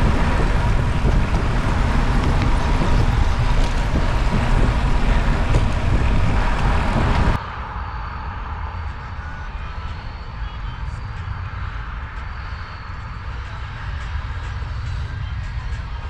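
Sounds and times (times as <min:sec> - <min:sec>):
low road rumble: 0:00.0 - 0:16.0
wind rushing over microphone: 0:00.0 - 0:16.0.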